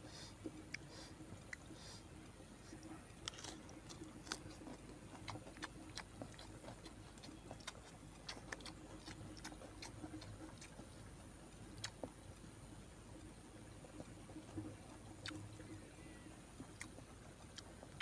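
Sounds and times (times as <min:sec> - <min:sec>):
person chewing with mouth smacks: 0:00.1 - 0:11.1, 0:11.8 - 0:12.2, 0:13.9 - 0:15.8, 0:16.6 - 0:18.0.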